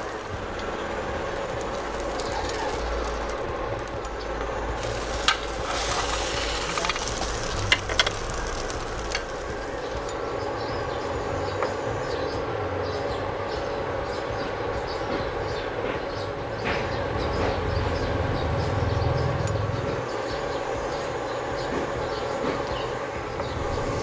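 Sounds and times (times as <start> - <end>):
bread sizzling in butter: 0.0 - 10.2.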